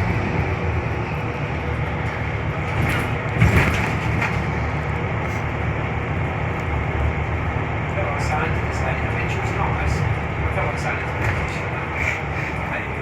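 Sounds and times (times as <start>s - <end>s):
rattle and bump: 0.0s - 5.5s, 8.2s - 12.2s
bus diesel engine running: 0.0s - 13.0s
road noise: 0.0s - 13.0s.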